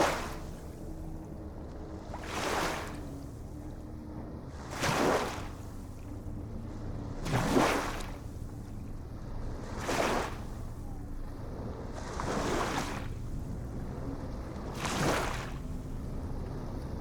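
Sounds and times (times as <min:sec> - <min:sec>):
ocean waves breaking: 0:12.0 - 0:17.0.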